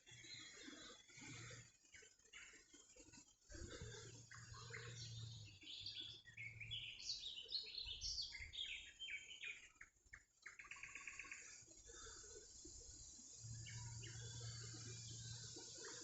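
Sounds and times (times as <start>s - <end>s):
songbird chirping: 3.6s - 16.0s.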